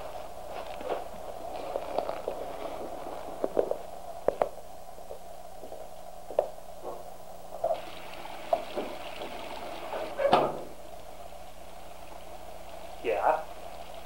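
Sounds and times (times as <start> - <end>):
steady hum: 0.0 - 14.0
tap running into a sink: 7.6 - 10.8.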